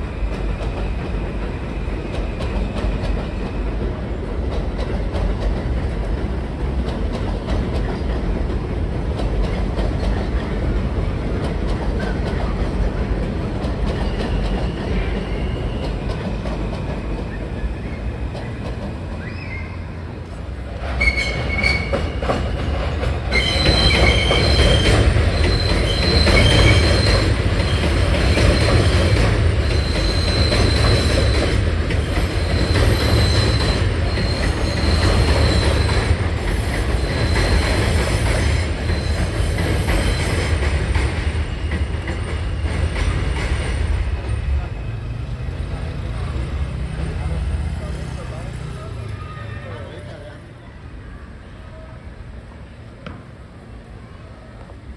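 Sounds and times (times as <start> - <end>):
train rumbling over rails: 0.0 - 54.9
high-pitched wheel squeal: 19.2 - 20.0, 20.9 - 22.5, 23.3 - 40.6.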